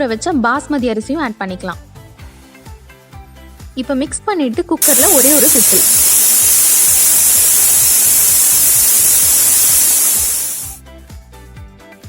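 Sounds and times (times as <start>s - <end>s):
pressure cooker whistle hissing: 4.8s - 10.8s.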